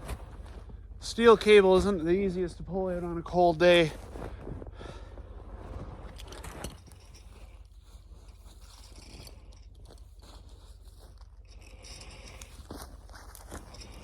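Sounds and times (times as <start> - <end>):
steel cable scraping: 5.5 - 14.0.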